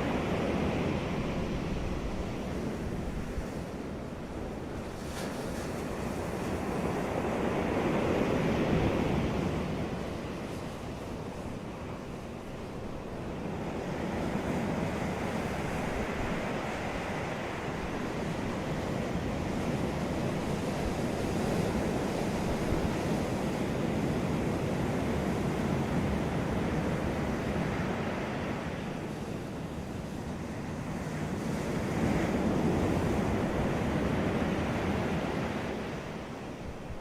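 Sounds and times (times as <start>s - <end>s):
ocean waves washing on beach: 0.0s - 37.0s.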